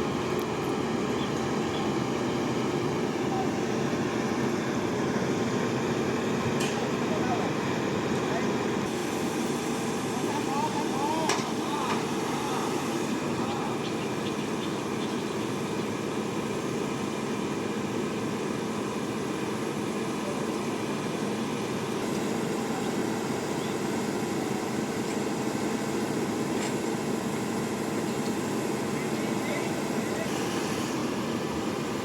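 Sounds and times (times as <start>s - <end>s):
heavy machinery rumbling: 0.0s - 32.0s.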